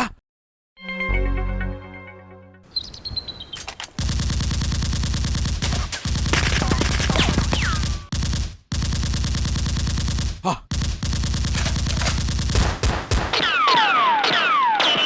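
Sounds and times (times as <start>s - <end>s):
automatic gunfire: 4.0s - 15.0s.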